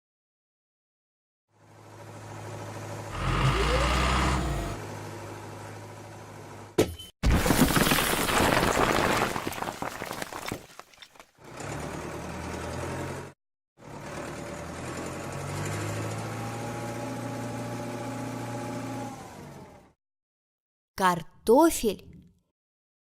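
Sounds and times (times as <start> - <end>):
small motor humming: 3.1 - 4.8.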